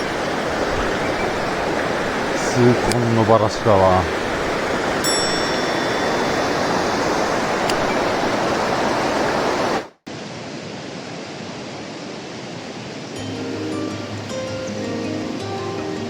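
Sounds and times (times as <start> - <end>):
mountain stream rushing: 0.0 - 16.0
background music: 13.2 - 16.0.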